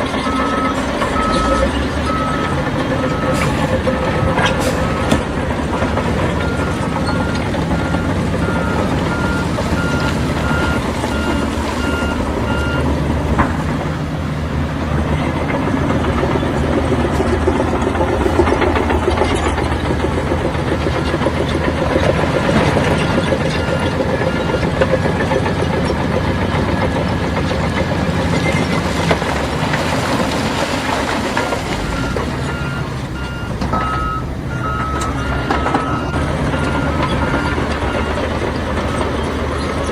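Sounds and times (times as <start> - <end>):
diesel construction machinery running: 0.0 - 39.9
reversing alarm beeping: 0.2 - 12.9, 22.8 - 25.1, 31.4 - 39.9.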